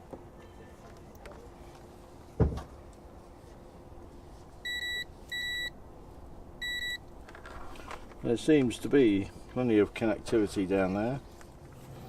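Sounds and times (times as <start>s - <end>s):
short steady beeps: 4.6s - 5.8s, 6.6s - 7.0s.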